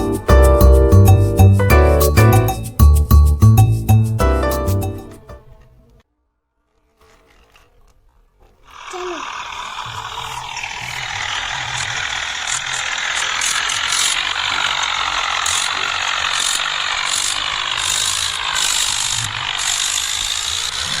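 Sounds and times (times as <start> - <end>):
toy motor and gears whirring: 8.7 - 21.0.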